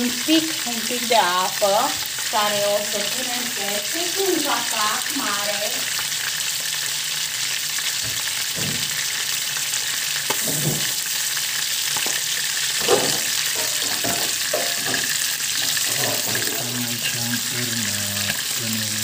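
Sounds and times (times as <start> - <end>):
sausages sizzling in oil: 0.0 - 19.0
knocks in pan: 8.0 - 9.0, 10.3 - 11.0, 12.8 - 16.7.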